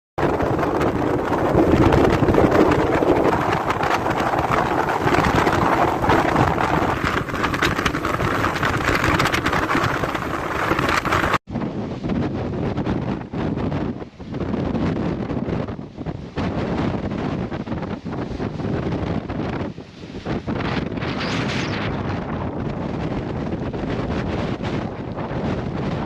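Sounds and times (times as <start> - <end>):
storm wind buffeting microphone: 0.2 - 26.0.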